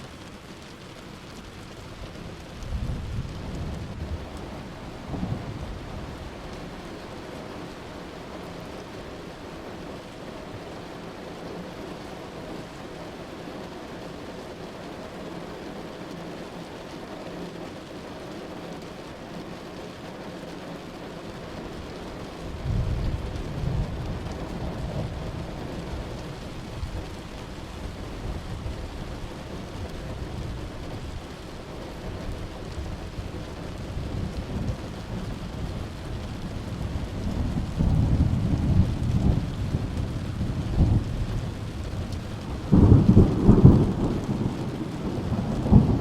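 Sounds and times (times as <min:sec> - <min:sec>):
steady rain: 0:00.0 - 0:46.0
thunder rumbling: 0:01.5 - 0:09.0, 0:21.6 - 0:46.0.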